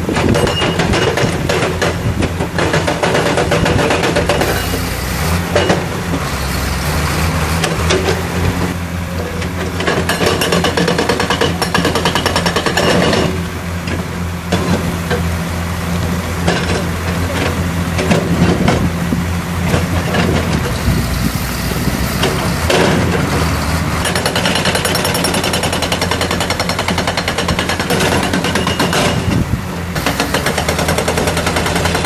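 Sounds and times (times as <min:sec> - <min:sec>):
hydraulic breaker hammering rock: 0:00.0 - 0:06.3, 0:09.7 - 0:15.3, 0:16.4 - 0:18.9, 0:21.8 - 0:32.0
diesel engine under load: 0:00.0 - 0:32.0.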